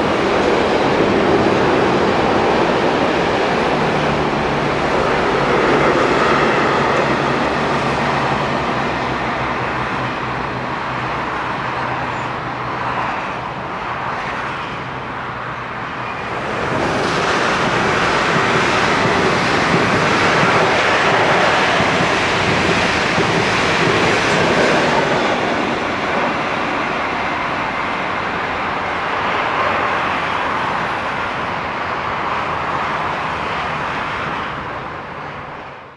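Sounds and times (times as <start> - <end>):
wheels rushing on rail: 0.0 - 35.9
freight train wheels rolling: 15.8 - 31.5.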